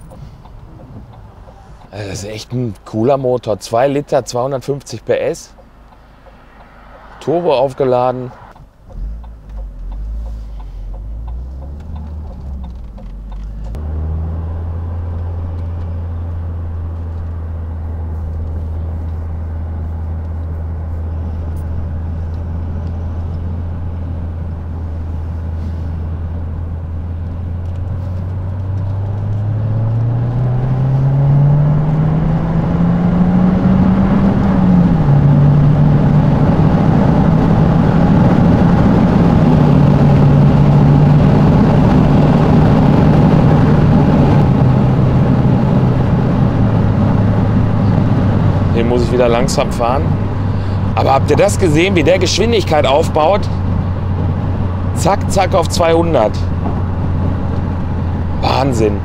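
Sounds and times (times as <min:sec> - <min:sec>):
car engine accelerating: 0:05.4 - 0:59.0.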